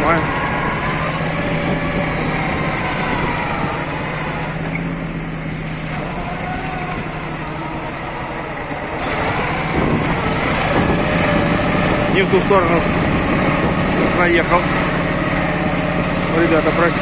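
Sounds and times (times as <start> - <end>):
wind on microphone: 0.0 - 4.7, 9.1 - 15.1
tractor engine running: 0.0 - 17.0.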